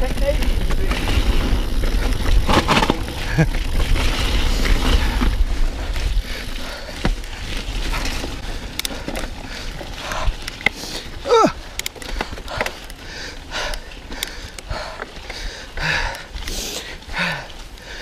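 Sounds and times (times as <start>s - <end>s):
bike clicks and rattles: 0.0s - 18.0s
bike tyre noise on trail: 0.0s - 18.0s
rider breathing hard: 3.0s - 18.0s.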